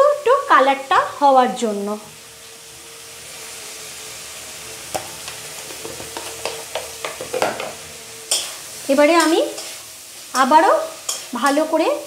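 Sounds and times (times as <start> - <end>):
paste sizzling in oil: 0.0 - 12.0
metal spatula scraping pan: 5.6 - 11.8.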